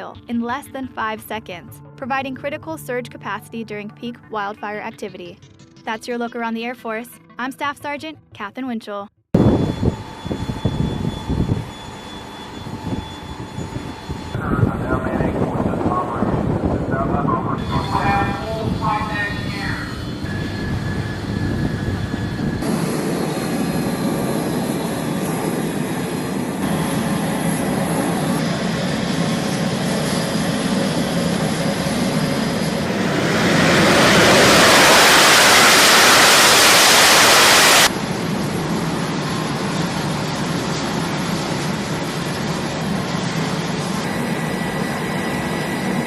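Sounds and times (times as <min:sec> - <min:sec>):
jet engine noise: 0:09.4 - 0:46.0.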